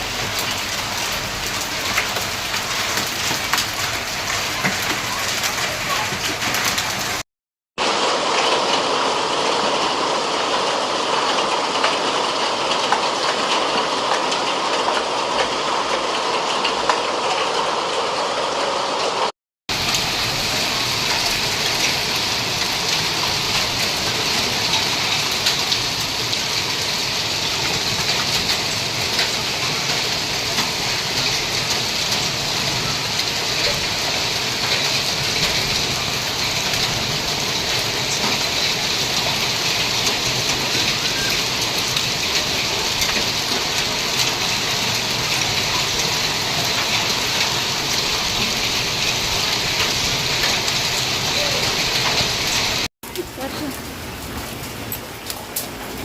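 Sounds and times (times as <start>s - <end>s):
hailstones ticking: 0.0s - 7.2s, 19.7s - 56.0s
rain hissing: 0.0s - 7.2s, 7.8s - 56.0s.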